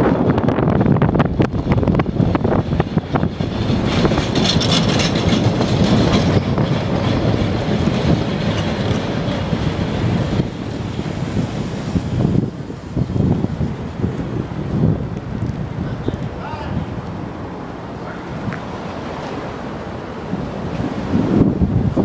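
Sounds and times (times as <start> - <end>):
train rushing rumble: 0.0 - 22.0
train wheels clicking over rail joints: 1.4 - 12.4.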